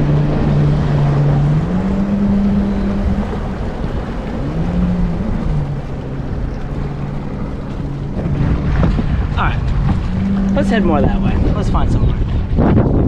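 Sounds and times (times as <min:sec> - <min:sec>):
jet ski engines droning: 0:00.0 - 0:13.0
water noise: 0:00.0 - 0:13.0
wind: 0:00.0 - 0:13.0.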